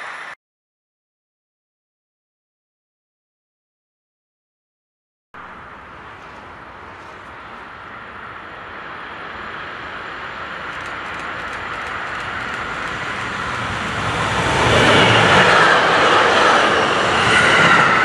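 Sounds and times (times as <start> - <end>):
train approaching: 5.4 - 18.0.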